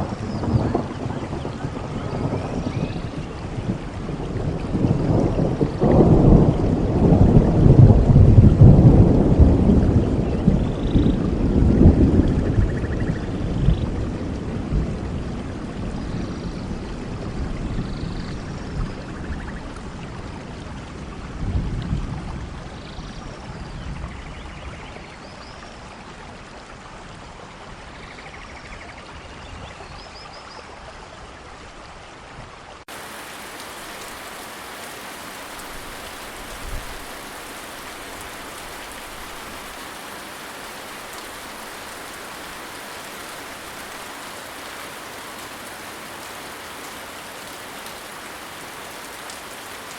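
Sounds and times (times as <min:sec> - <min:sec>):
thunder rumbling: 0:00.0 - 0:15.9, 0:32.9 - 0:49.9
rain falling: 0:00.0 - 0:49.9.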